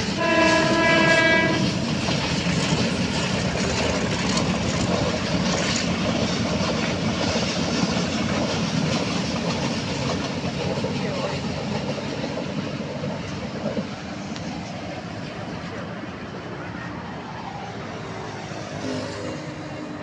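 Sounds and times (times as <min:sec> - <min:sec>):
train horn: 0:00.0 - 0:02.4
moving train rumble and clatter: 0:00.0 - 0:20.0.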